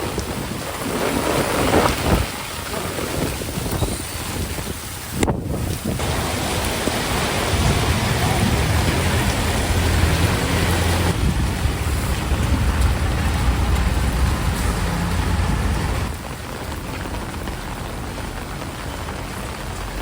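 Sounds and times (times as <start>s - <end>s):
heavy rain pouring: 0.0s - 20.0s
deep low rumble: 7.5s - 16.2s.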